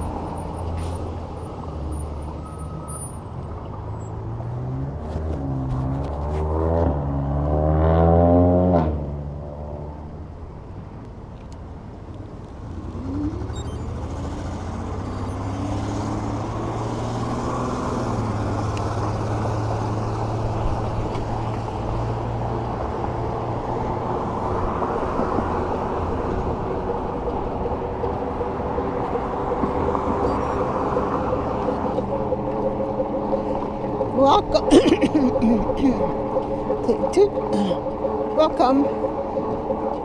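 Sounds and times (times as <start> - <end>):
road and wind noise: 0.0 - 40.0
low hum: 25.5 - 40.0.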